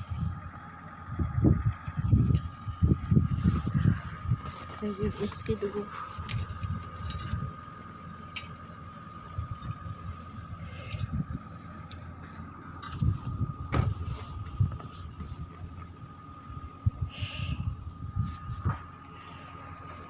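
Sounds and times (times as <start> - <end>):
vehicle engine whining: 0.0 - 20.0
wind on microphone: 1.2 - 4.6.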